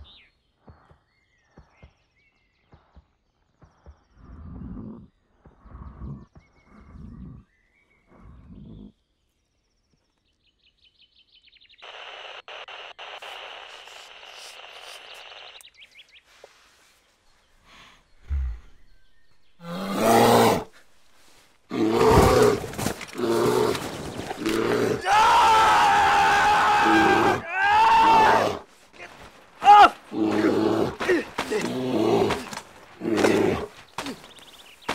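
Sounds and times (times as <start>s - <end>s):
bear roaring and growling: 19.6s - 20.9s, 21.7s - 28.7s, 29.6s - 34.3s.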